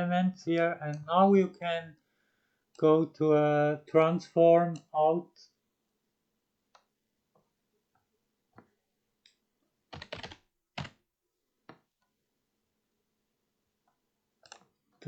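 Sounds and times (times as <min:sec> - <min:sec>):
computer keyboard keystrokes: 0:09.9 - 0:11.0, 0:14.4 - 0:14.7.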